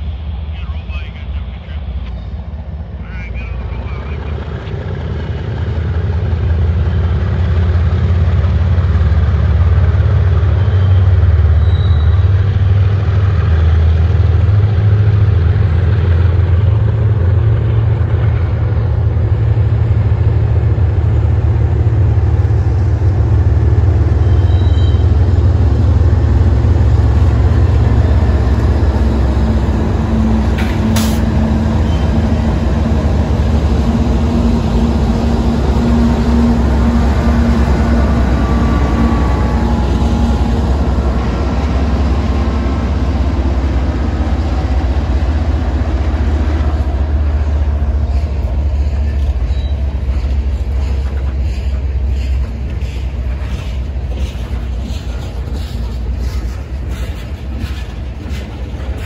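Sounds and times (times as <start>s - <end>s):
diesel locomotive engines droning: 0.0s - 59.0s.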